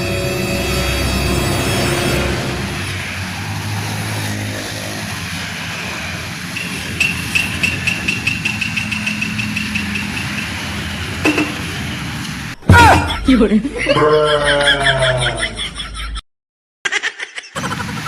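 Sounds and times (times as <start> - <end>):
high-pitched pulsing ringing: 0.0 - 3.1.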